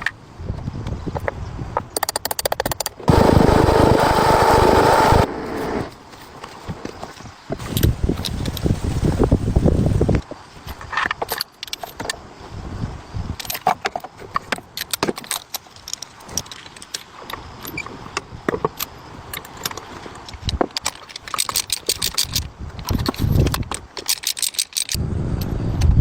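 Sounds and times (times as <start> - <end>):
metal tools clinking and clattering: 18.6 - 25.0.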